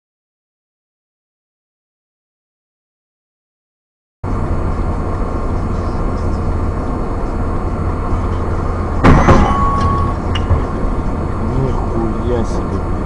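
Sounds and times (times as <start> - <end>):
road and engine noise in car: 4.2 - 13.0
loud collision bang: 9.0 - 10.8.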